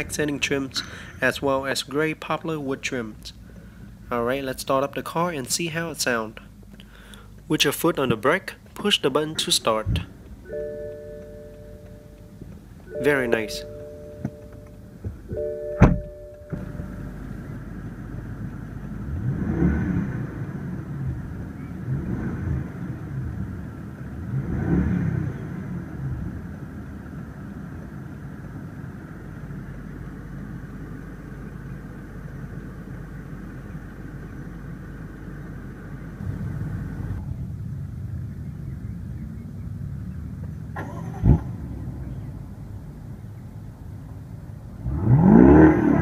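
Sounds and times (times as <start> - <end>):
car engine idling: 0.0 - 45.3
car engine revving: 9.3 - 38.8, 44.7 - 46.0.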